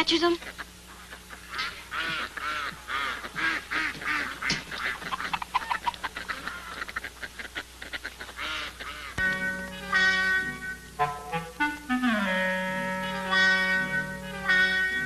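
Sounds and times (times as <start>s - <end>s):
waterfowl honking: 0.0s - 15.0s
clarinet-led music: 9.2s - 15.0s.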